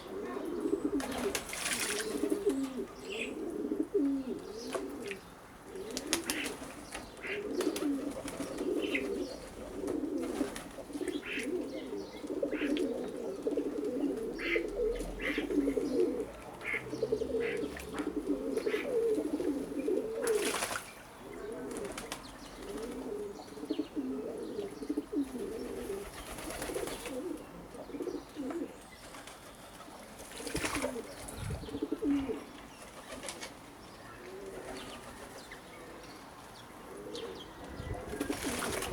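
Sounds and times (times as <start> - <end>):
doves cooing: 0.0 - 38.9
small birds chirping: 0.0 - 38.9.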